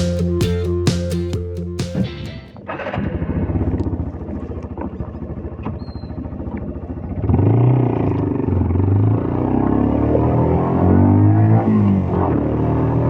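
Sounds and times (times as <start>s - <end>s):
motorcycle engine idling and revving: 2.8s - 13.0s.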